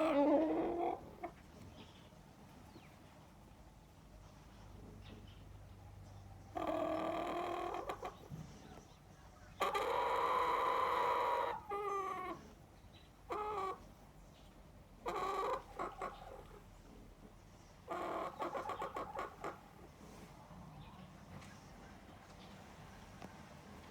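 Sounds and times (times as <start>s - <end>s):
chicken calling: 0.0s - 1.4s, 6.6s - 8.3s, 9.6s - 12.6s, 13.3s - 13.9s, 15.0s - 16.6s, 17.9s - 19.9s.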